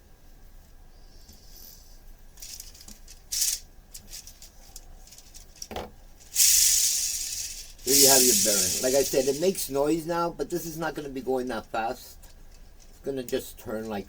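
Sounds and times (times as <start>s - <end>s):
plastic parts clicking and rattling: 2.4s - 9.6s
ball bearing rattling hiss: 2.4s - 10.0s.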